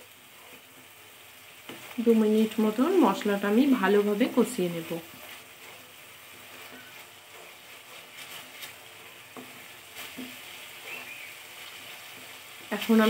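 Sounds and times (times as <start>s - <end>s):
paste sizzling in oil: 0.0s - 13.0s
spatula scraping a steel pan: 4.9s - 12.4s.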